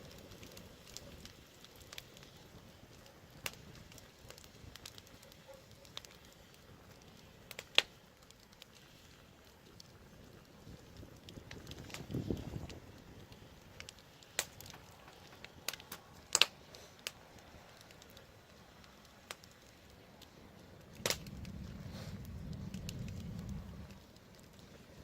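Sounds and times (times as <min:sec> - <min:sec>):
burning wood crackling: 0:00.0 - 0:25.0
sharp pops of fire: 0:00.0 - 0:25.0
low rumble: 0:20.8 - 0:24.9.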